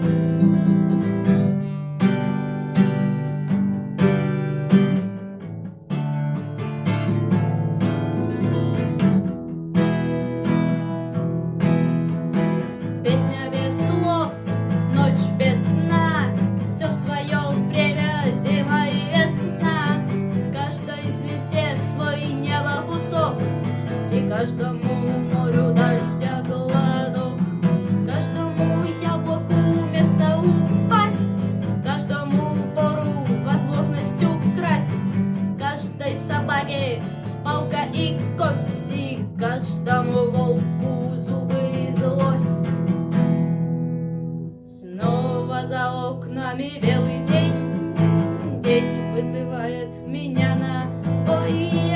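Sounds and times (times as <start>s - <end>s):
acoustic guitar strumming: 0.0s - 51.9s
person singing: 12.7s - 42.8s, 44.7s - 51.9s.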